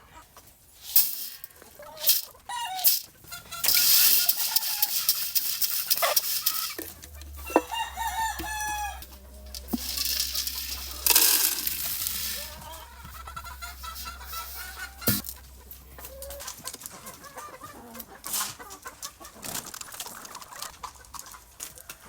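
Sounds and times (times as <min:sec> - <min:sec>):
chickens clucking: 0:00.0 - 0:22.0
rustling noise: 0:00.6 - 0:16.7
rooster crowing: 0:06.5 - 0:16.4
low hum: 0:06.8 - 0:16.3.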